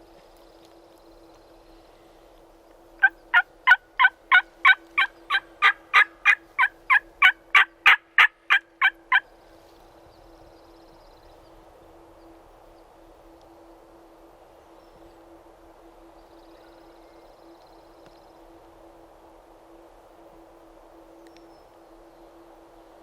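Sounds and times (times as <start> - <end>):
turkey yelping: 3.0 - 9.2.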